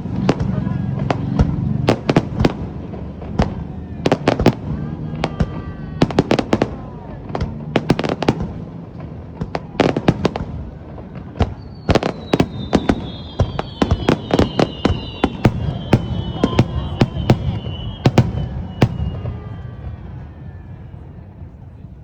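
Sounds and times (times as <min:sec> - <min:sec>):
fireworks bangs and crackles: 0:00.0 - 0:22.0
firework whistle: 0:09.8 - 0:21.6.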